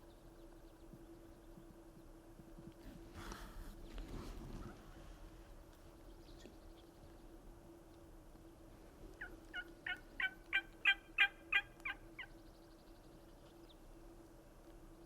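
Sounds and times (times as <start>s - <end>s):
turkey yelps: 9.2s - 12.3s.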